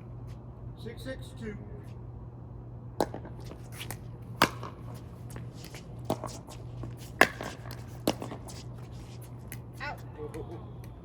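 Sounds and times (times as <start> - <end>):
ball bouncing on court: 3.0 - 3.4, 4.4 - 5.0, 6.0 - 8.5
paddles striking ball: 4.4 - 4.9, 7.2 - 8.5.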